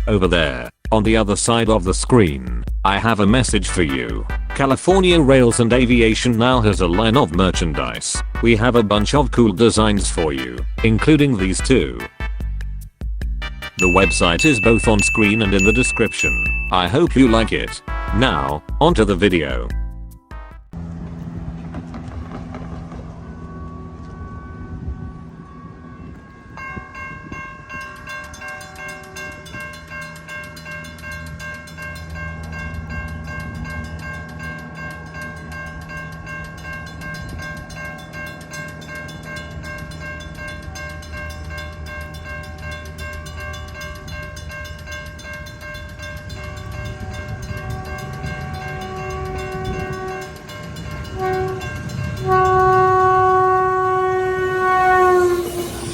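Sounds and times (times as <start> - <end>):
crossing warning bells ringing: 3.0 - 12.0, 13.7 - 55.9
train horn blasts: 4.2 - 5.5, 17.8 - 18.6, 20.3 - 27.4, 46.3 - 55.9
train running: 13.8 - 16.7, 20.8 - 55.9.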